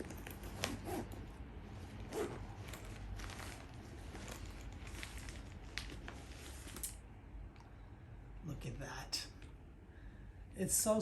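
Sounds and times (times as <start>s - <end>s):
packaging rustling and crinkling: 2.0s - 6.9s.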